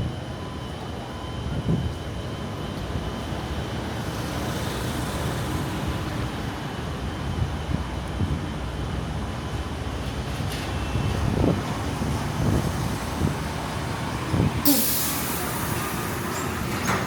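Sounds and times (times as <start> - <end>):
faint high tone: 14.7 - 15.0.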